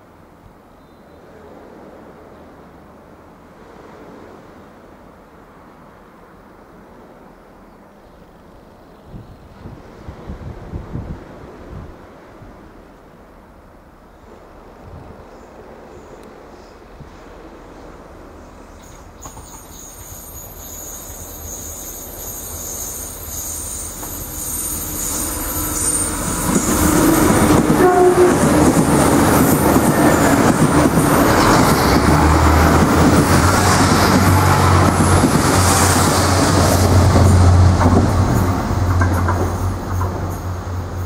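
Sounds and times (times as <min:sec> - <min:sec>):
train wheels rumbling on rail: 0:14.3 - 0:41.0.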